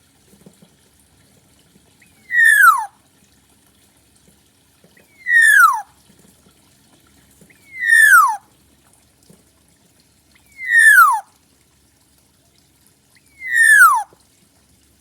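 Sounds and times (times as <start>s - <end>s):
bird whistling descending note: 2.2s - 2.9s, 5.1s - 5.8s, 7.6s - 8.4s, 10.6s - 11.2s, 13.4s - 14.1s.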